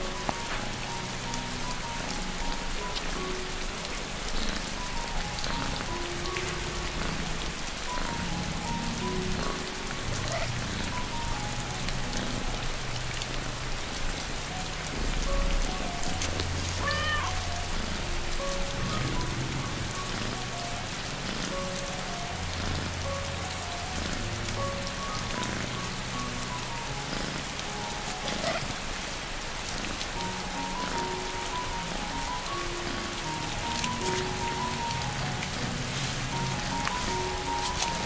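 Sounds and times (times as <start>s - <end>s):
rain: 0.0s - 38.0s
soft relaxation music: 0.0s - 38.0s
kitten meowing: 16.7s - 17.9s.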